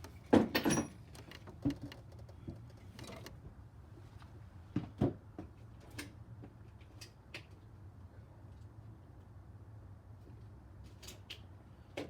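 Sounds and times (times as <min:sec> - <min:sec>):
hand tools clicking and knocking: 0:00.0 - 0:03.3.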